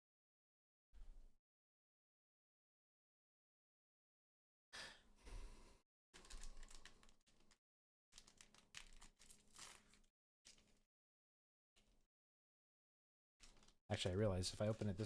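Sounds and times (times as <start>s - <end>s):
foil pack crinkling and tearing: 6.2s - 7.6s, 8.2s - 10.8s, 13.4s - 15.0s.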